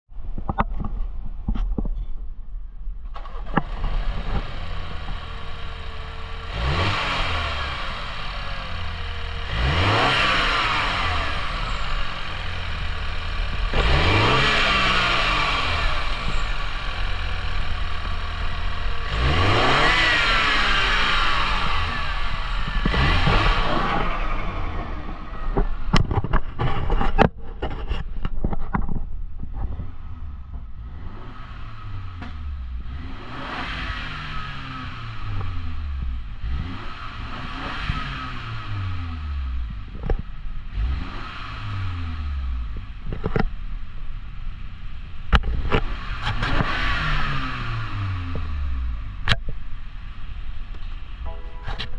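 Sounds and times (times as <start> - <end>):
sharp clicks and knocks: 0.3 - 2.4, 25.0 - 29.9, 49.2 - 49.6
car engine idling: 2.7 - 28.0, 38.4 - 51.9.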